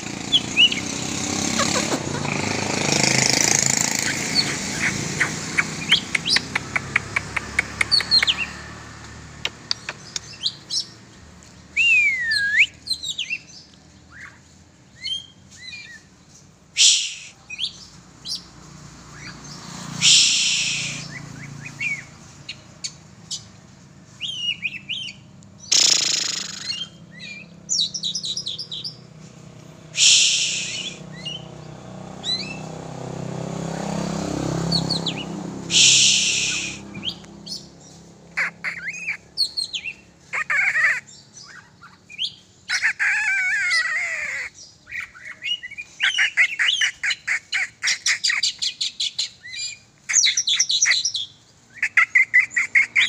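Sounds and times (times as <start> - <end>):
bird singing whistled phrases: 11.8 - 13.5, 16.8 - 17.8, 20.0 - 22.1, 24.2 - 29.0, 30.0 - 31.4, 34.7 - 37.6
short hissing bursts: 20.0 - 21.1, 30.0 - 31.0, 35.7 - 36.9.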